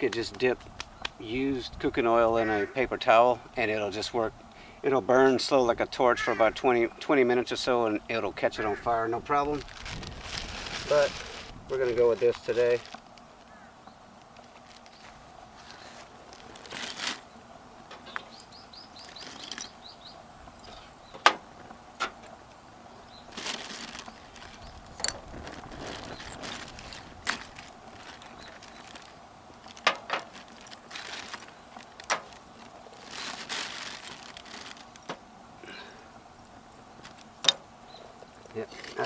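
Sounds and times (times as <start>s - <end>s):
rustling: 8.5s - 20.0s, 20.6s - 36.0s.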